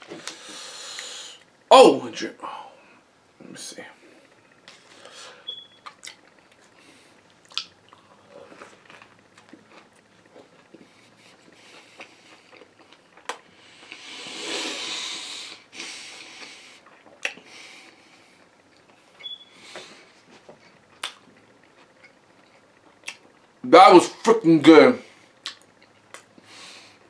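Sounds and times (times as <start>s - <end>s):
biting and chewing food: 5.8s - 14.1s.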